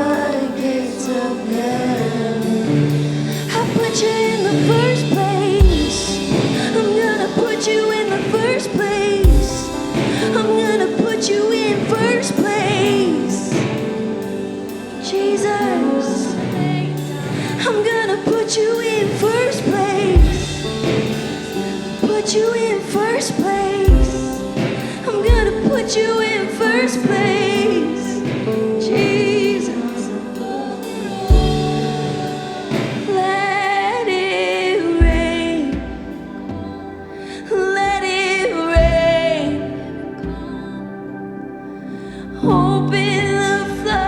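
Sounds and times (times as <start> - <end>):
person singing: 0.0 - 44.0
deep drum hits: 3.2 - 7.5, 8.4 - 10.8, 20.2 - 23.1.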